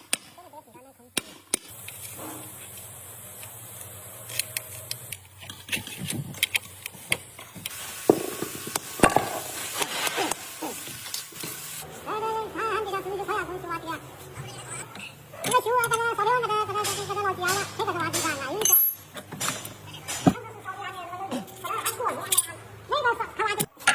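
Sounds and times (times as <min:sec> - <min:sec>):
steady high hiss: 0:01.6 - 0:14.4
metal parts clicking and knocking: 0:15.0 - 0:20.4.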